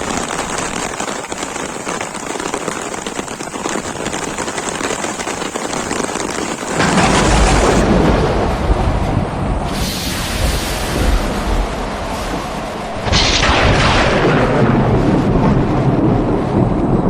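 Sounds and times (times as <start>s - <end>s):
rain falling: 0.0s - 17.0s
thunder cracking: 6.6s - 17.0s.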